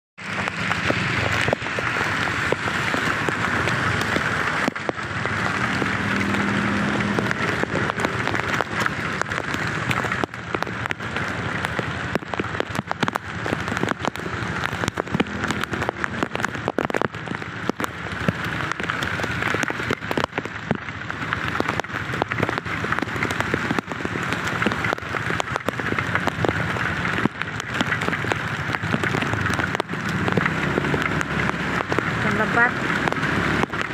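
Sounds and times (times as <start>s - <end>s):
heavy rain falling: 0.2s - 33.9s
raindrops hitting close: 0.2s - 33.9s.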